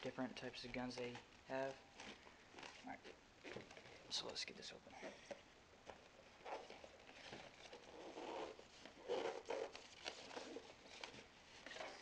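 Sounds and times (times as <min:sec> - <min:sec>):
cardboard scraping and rustling: 0:06.4 - 0:12.0.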